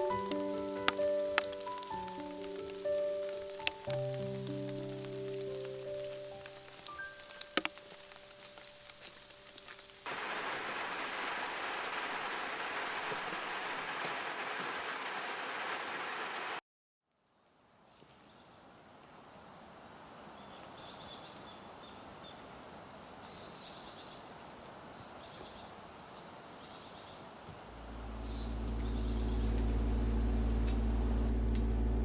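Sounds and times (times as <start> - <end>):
steady rain: 0.0 - 16.6, 19.2 - 32.0
engine idling: 27.6 - 32.0
songbirds chirping and singing: 27.9 - 31.6.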